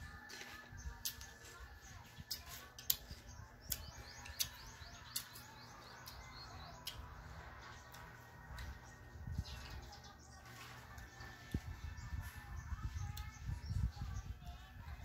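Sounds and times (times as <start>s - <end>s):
small bird chirping: 0.5s - 15.0s.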